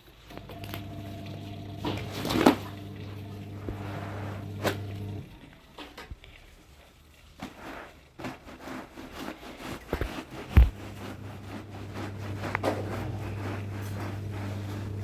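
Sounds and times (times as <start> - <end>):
low steady hum: 0.3 - 5.5
objects being handled: 0.3 - 15.0.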